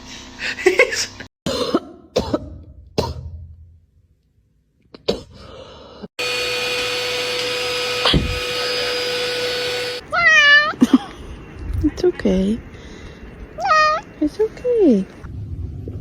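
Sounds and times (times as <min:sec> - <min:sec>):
electric motor whining: 0:06.2 - 0:10.0.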